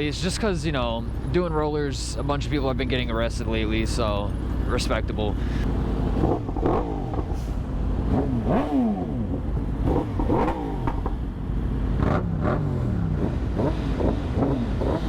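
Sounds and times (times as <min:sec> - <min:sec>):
wind and road noise: 0:00.0 - 0:15.0
motorcycle engine revving: 0:05.6 - 0:15.0.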